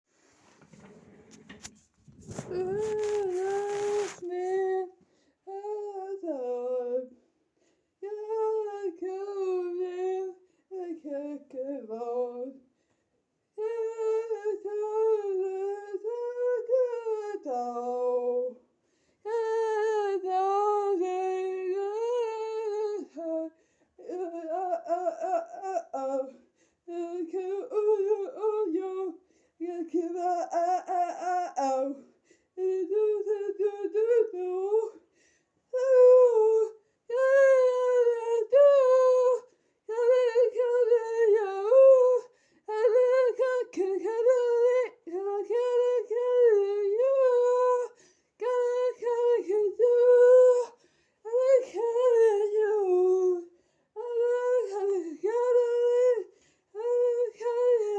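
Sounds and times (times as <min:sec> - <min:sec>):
rustling: 0:00.1 - 0:04.7.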